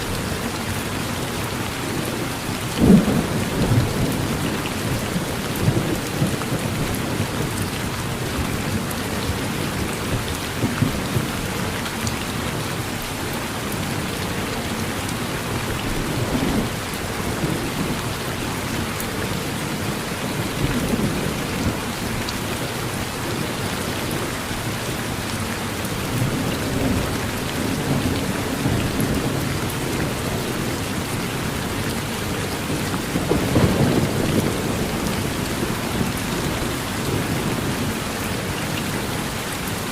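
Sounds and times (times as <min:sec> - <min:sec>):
heavy rain on a porch: 0:00.0 - 0:39.9
thunder rumbling: 0:02.7 - 0:11.4, 0:26.0 - 0:38.1.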